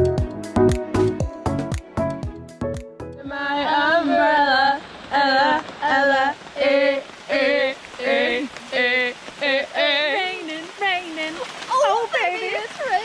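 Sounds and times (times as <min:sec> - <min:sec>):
rain hiss: 0:03.3 - 0:13.0.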